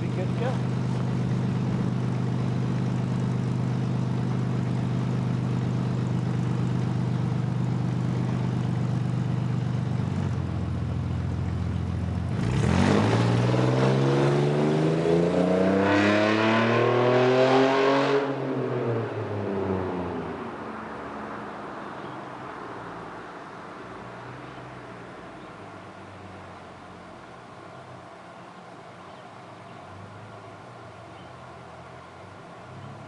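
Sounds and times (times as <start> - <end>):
car engine exhaust revving: 12.0 - 19.6.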